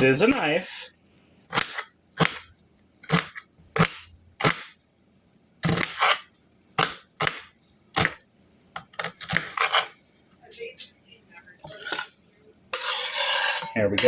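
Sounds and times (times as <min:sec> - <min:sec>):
knife chopping on cutting board: 0:01.5 - 0:04.8, 0:05.6 - 0:08.2, 0:08.8 - 0:10.0.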